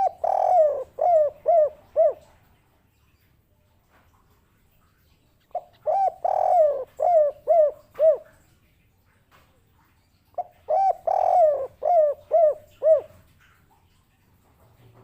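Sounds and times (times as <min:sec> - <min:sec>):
dove cooing: 0:00.0 - 0:02.4, 0:05.5 - 0:08.4, 0:10.4 - 0:13.3.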